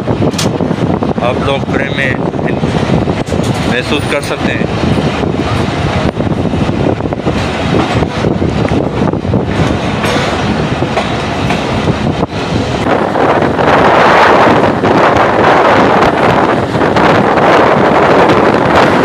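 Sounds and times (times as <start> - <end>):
train wheels clattering over rail joints: 0.1 - 1.0, 2.6 - 13.6.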